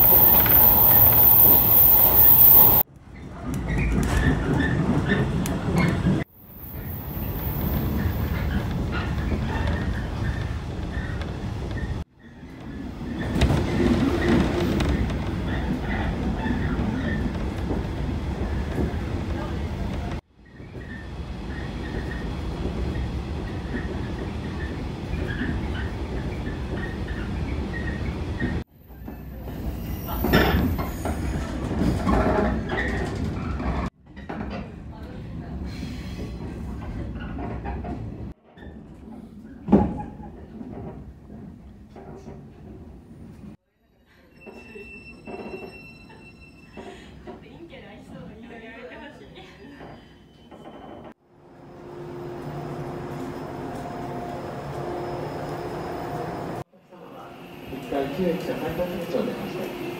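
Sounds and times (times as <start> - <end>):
electric train rumbling: 0.0 - 2.9, 3.5 - 33.9, 50.7 - 59.9
squeaks and rattles: 44.4 - 47.6, 49.6 - 51.2.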